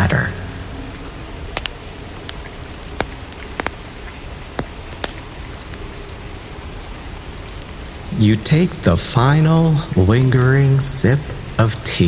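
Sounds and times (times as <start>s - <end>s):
sharp drops ticking: 0.0s - 6.6s
steady rain: 0.0s - 12.0s.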